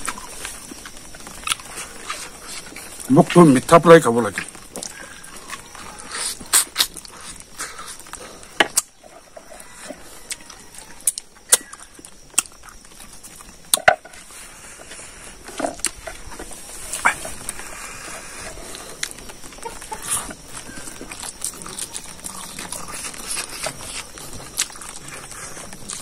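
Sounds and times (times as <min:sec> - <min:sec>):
man chewing with mouth open: 0:00.0 - 0:03.1, 0:04.4 - 0:26.0
lip smacks and mouth clicks: 0:06.1 - 0:08.9, 0:11.1 - 0:12.8.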